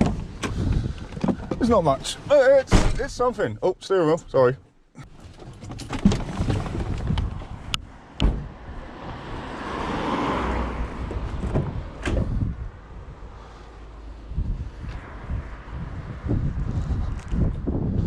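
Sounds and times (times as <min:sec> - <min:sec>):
sharp knocks and clunks: 0:00.0 - 0:01.8, 0:02.7 - 0:03.3, 0:05.0 - 0:08.6, 0:11.0 - 0:12.4.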